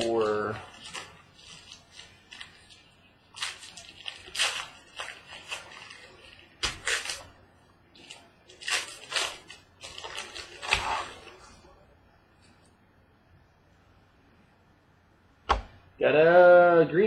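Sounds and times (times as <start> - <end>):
packaging rustling and crinkling: 0.0 - 7.4, 8.0 - 11.7.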